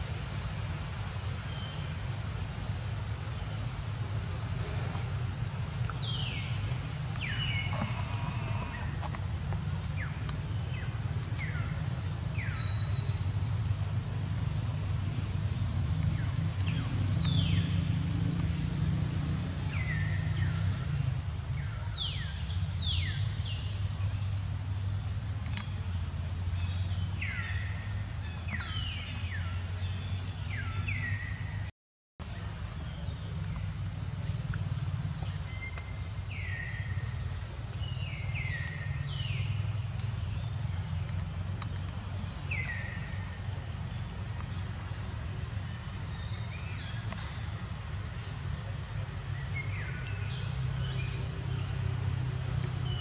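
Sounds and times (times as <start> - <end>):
birds calling: 4.4 - 11.7.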